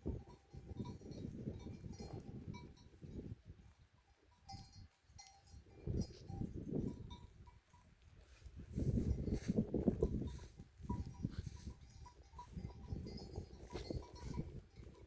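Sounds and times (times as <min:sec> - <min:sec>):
sheep bells clinking: 0:00.0 - 0:15.0.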